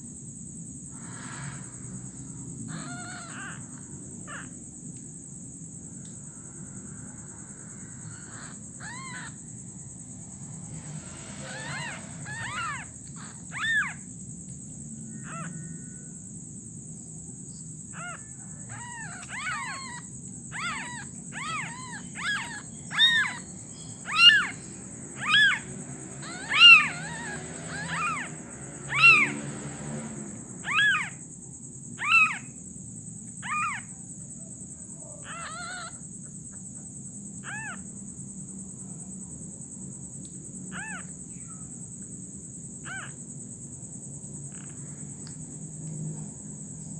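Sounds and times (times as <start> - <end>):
young animal crying: 1.0 - 1.8, 2.6 - 4.6, 6.9 - 9.5, 11.0 - 14.1, 15.1 - 16.1, 17.9 - 29.6, 30.3 - 31.2, 32.0 - 32.6, 33.4 - 34.0, 35.0 - 36.6, 37.4 - 37.9, 40.7 - 41.7, 42.8 - 43.2.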